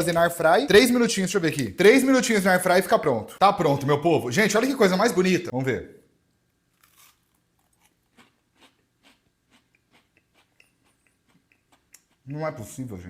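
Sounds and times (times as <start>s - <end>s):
crunching bites of waffle: 6.7s - 10.1s.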